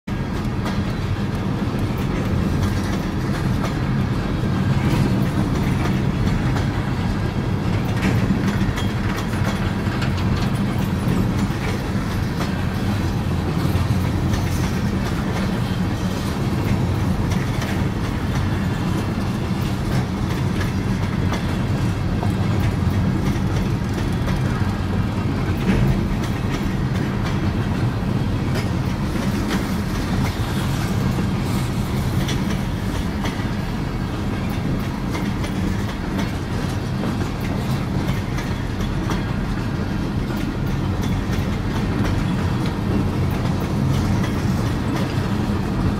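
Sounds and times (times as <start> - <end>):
freight train rumbling: 0.0 - 45.9
wheel clicks over rail joints: 0.2 - 33.7.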